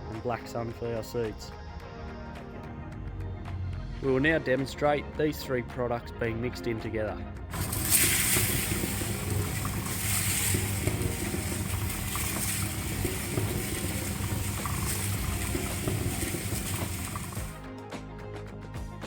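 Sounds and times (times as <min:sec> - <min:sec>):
dry grain tumbling hiss: 0:07.6 - 0:17.6
mixer motor hum: 0:07.6 - 0:17.6.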